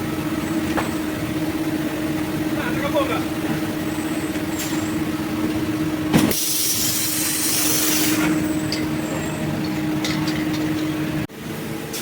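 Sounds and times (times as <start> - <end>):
loud air hiss: 6.2 - 8.4.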